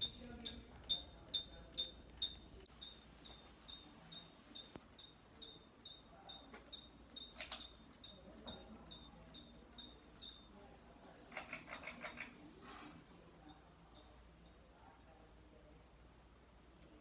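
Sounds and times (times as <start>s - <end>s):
high-pitched ticking: 0.0s - 10.5s
ceiling fan running: 0.0s - 17.0s.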